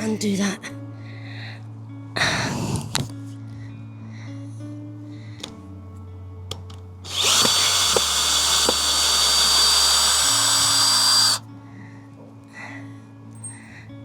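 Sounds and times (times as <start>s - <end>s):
cordless drill whining: 7.1s - 11.4s.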